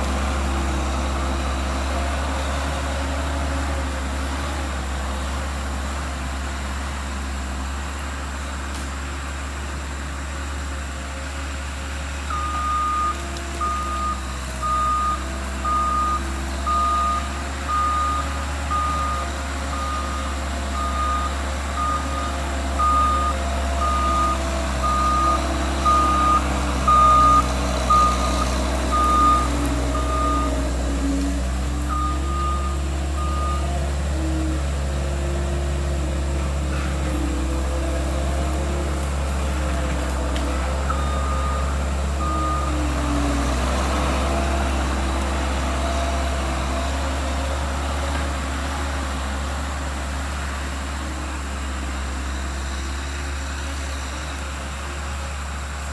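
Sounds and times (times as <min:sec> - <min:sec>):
diesel engine running under load: 0:00.0 - 0:55.9
backup alarm beeping: 0:12.3 - 0:30.7, 0:31.9 - 0:33.7, 0:40.9 - 0:43.4.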